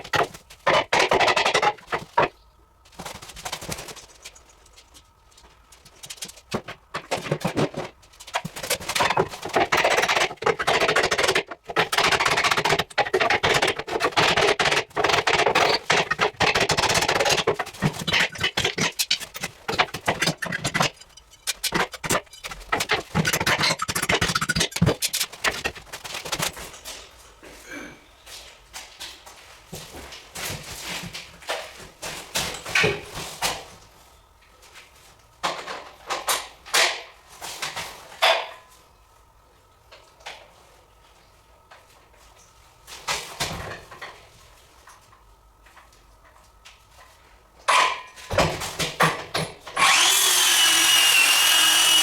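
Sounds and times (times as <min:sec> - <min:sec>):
clattering of hard objects: 0:00.0 - 0:27.2.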